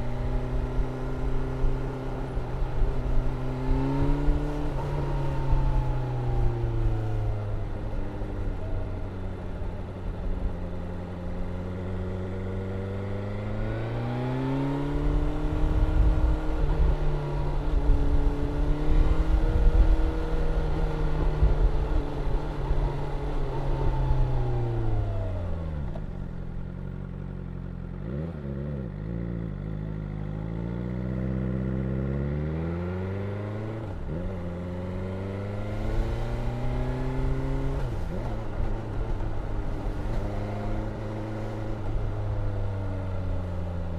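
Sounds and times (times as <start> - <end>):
motorcycle engine revving: 26.6 - 43.9.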